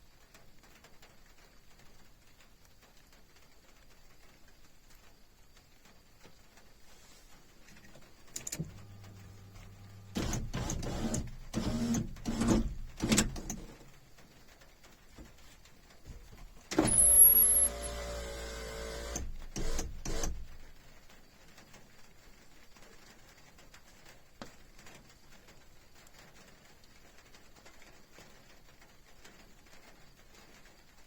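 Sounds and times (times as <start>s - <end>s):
clicks: 7.8s - 13.9s, 16.7s - 20.6s
short mechanical whir: 8.5s - 13.8s, 16.7s - 20.6s
knocks and rustling handling: 15.1s - 16.8s.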